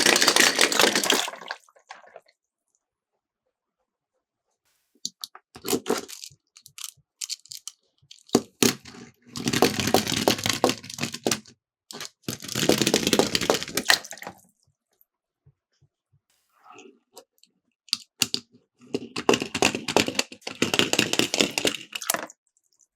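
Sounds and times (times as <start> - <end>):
toy cars clattering down plastic track: 0.0 - 1.4, 5.6 - 13.9, 19.0 - 22.3.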